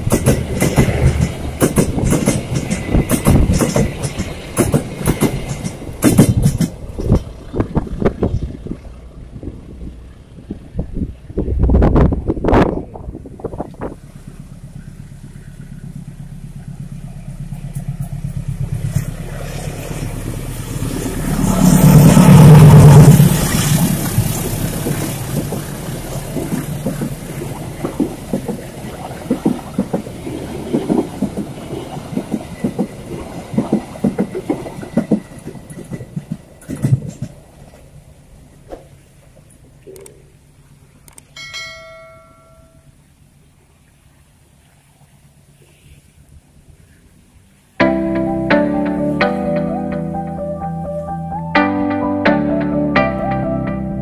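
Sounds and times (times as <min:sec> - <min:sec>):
train wheels clacking over rail joints: 0:00.0 - 0:08.8, 0:17.0 - 0:20.4, 0:21.3 - 0:37.9
diesel locomotive engine: 0:00.0 - 0:54.0.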